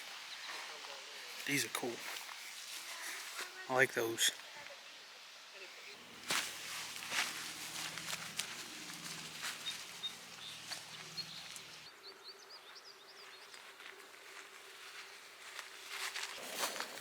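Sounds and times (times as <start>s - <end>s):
small birds chirping: 0.0s - 17.0s
faint low hum: 5.7s - 13.3s.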